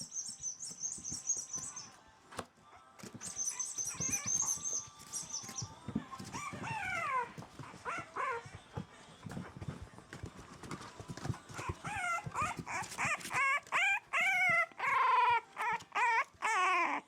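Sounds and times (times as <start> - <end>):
puppies whining: 3.2 - 8.8, 11.4 - 17.0.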